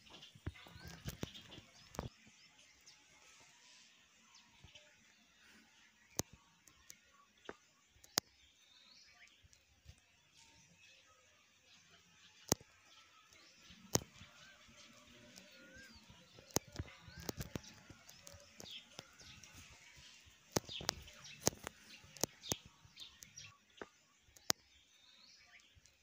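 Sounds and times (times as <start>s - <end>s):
faint high bird chirps: 0.0s - 26.0s
sharp clicks and ticks: 6.1s - 8.3s, 12.4s - 12.7s, 13.3s - 14.4s, 15.2s - 24.6s.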